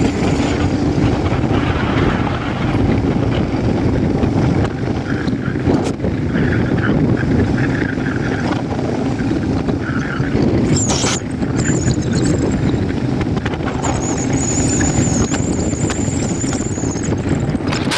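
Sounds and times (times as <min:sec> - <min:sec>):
motorcycle engine and road noise: 0:00.0 - 0:17.9
wind buffeting microphone: 0:00.0 - 0:17.9
thin high whine: 0:10.6 - 0:11.8.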